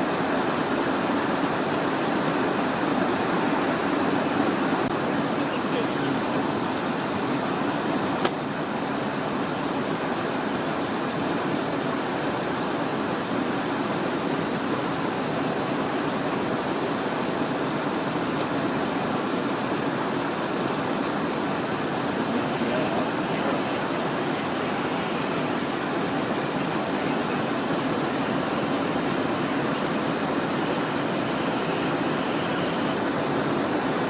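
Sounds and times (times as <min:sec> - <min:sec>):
jet cockpit roar: 0:00.0 - 0:09.0, 0:19.7 - 0:34.0.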